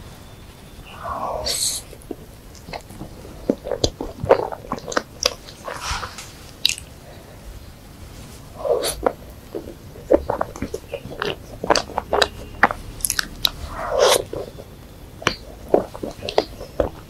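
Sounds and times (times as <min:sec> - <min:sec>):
squelchy mouthful: 0:00.9 - 0:07.2, 0:08.4 - 0:17.0
crunchy pastry chewing: 0:00.9 - 0:07.4, 0:08.1 - 0:17.0
wet mouth smacks: 0:02.6 - 0:06.9.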